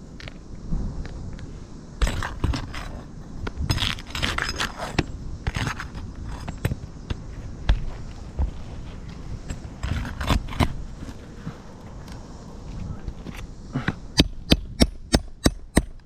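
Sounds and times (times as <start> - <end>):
nails scraping on shingles: 2.0 - 6.8, 9.5 - 11.6.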